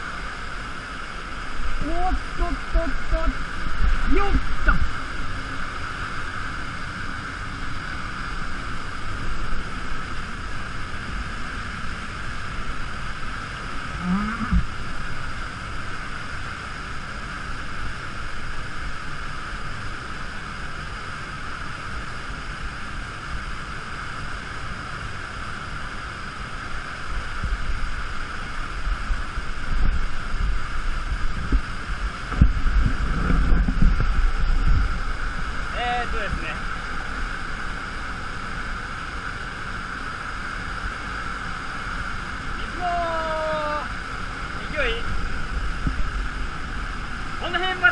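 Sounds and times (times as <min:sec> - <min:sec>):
wind buffeting microphone: 0:27.2 - 0:38.1, 0:44.2 - 0:47.9
waterfall crashing into pool: 0:39.8 - 0:47.9.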